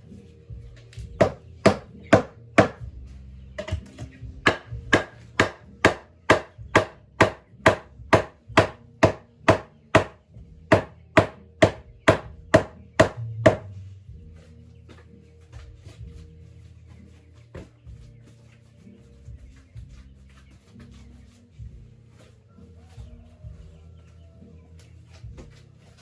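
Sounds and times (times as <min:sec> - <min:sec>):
steady chopping: 0:01.1 - 0:02.9, 0:04.4 - 0:13.8.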